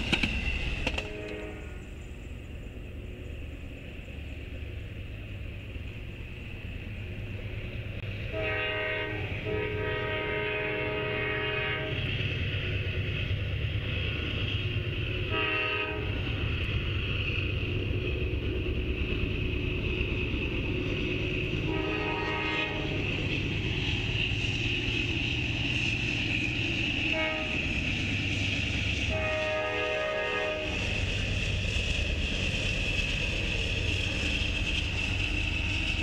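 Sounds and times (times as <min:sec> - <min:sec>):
wheel-on-rail noise: 0:00.0 - 0:08.7
freight train rumbling: 0:00.0 - 0:36.0
locomotive horn blasts: 0:01.0 - 0:01.9, 0:08.3 - 0:12.0, 0:15.3 - 0:16.2, 0:21.7 - 0:22.9, 0:27.1 - 0:27.6, 0:29.1 - 0:30.8.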